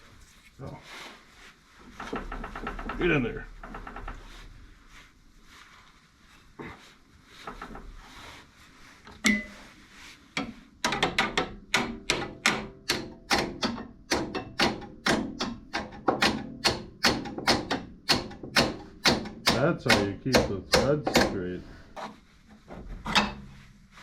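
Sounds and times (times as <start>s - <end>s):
hammer tapping on metal: 9.2s - 9.6s, 10.4s - 21.4s.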